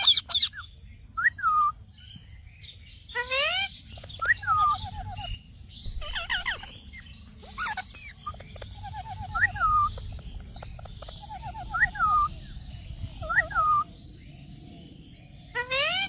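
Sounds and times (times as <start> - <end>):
parrot chirping and whistling: 0.0 - 0.6, 7.4 - 10.0.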